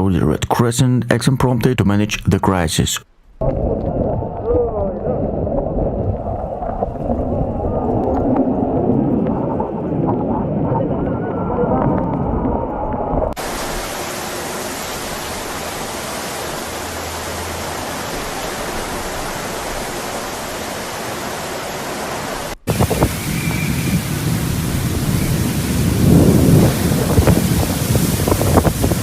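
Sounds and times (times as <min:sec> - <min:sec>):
wind: 0:03.1 - 0:29.0
low thunder rumbles: 0:03.3 - 0:13.6, 0:22.6 - 0:29.0
heavy rain hissing: 0:13.4 - 0:29.0.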